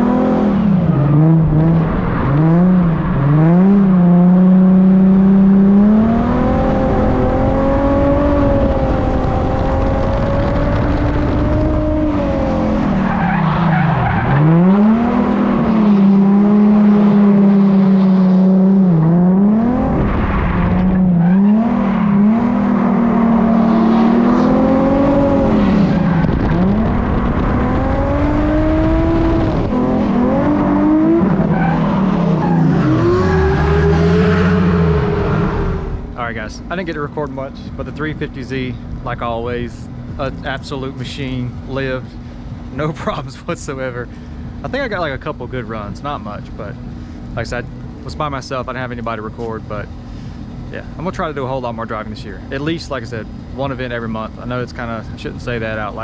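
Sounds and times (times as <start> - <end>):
car engine revving high: 0.0 - 36.7.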